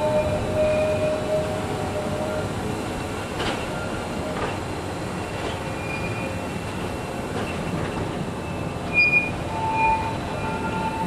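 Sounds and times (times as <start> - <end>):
faint thin squeal: 0.0 - 2.4, 5.7 - 6.4, 8.5 - 11.0
train wheels rumbling on rail: 0.0 - 11.0.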